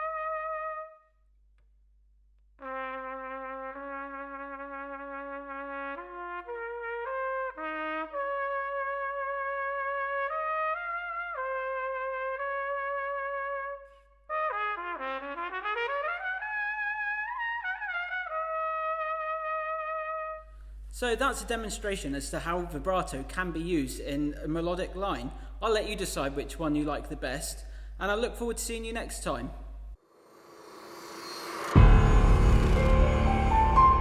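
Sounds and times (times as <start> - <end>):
solo brass melody: 0.0 - 1.1, 2.6 - 20.6, 31.7 - 34.0.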